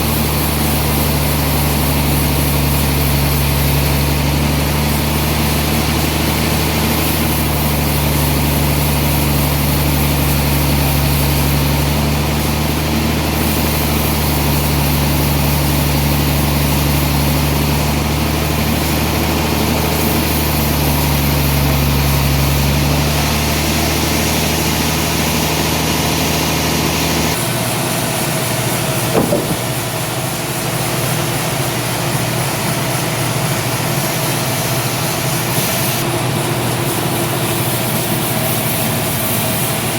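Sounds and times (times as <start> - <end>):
lighter machine running: 0.0 - 30.3
sawmill machinery deep hum: 0.0 - 39.9.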